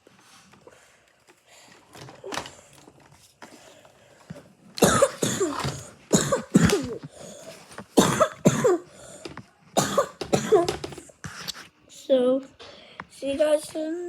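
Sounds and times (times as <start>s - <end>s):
person coughing hard: 4.8s - 7.1s, 8.0s - 9.0s, 9.8s - 11.1s.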